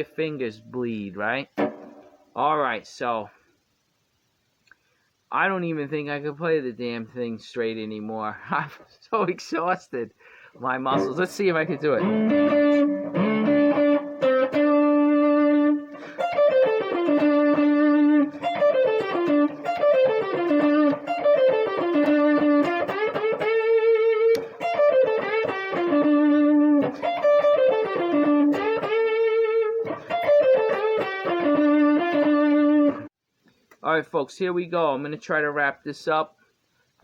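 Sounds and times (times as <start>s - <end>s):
blues guitar solo: 10.9s - 33.1s.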